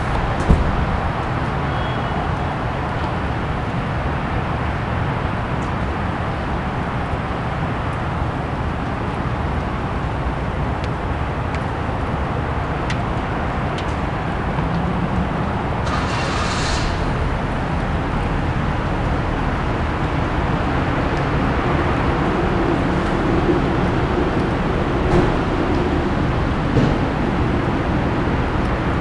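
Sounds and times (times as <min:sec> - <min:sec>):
road traffic rumble: 0:00.0 - 0:29.0
brief louder hiss: 0:15.9 - 0:17.2.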